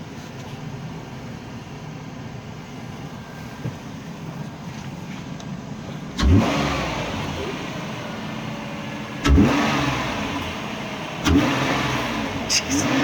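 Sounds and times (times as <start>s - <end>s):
car engine revving: 6.1s - 13.0s.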